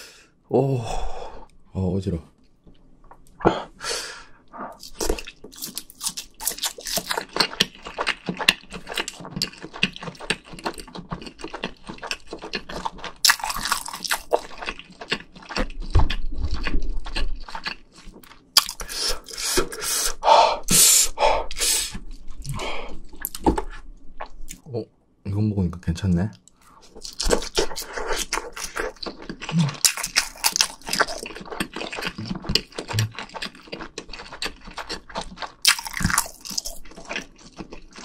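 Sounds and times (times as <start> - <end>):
person chewing with wet smacks: 4.7 - 19.8, 26.8 - 38.0.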